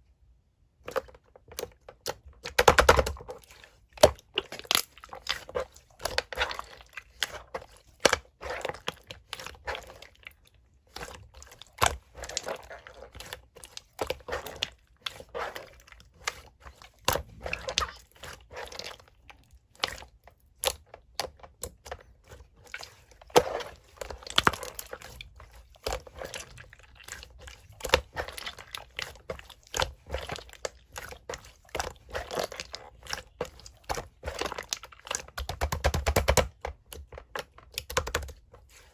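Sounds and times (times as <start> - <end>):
slime squelching: 0.6 - 38.9
air pockets popping in slime: 35.3 - 36.6.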